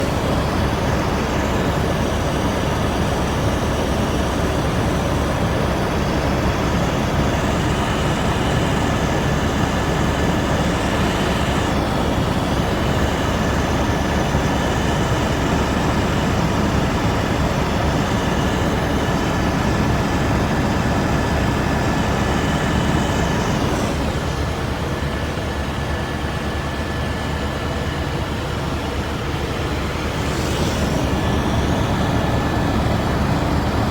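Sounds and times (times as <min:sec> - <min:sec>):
helicopter engine and rotor rumble: 0:00.0 - 0:33.9.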